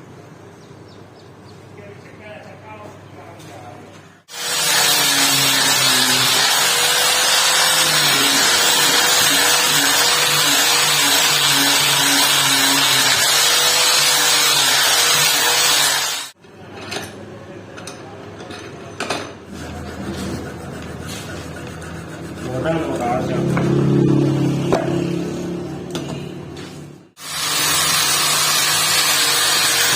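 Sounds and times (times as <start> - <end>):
power tool running: 4.3 - 16.4, 27.2 - 29.9.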